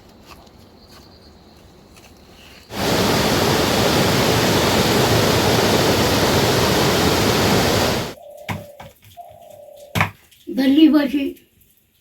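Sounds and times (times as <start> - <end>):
loud rush of water: 2.7 - 8.2.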